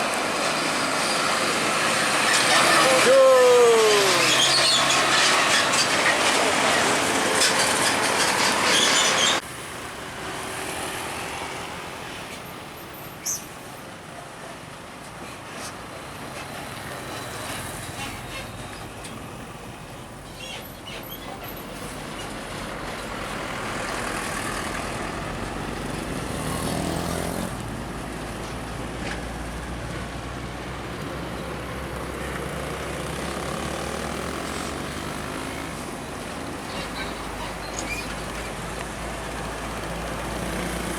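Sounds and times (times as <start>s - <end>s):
truck passing loudly: 0.0s - 12.4s, 21.8s - 40.9s
steady highway traffic: 0.0s - 40.9s.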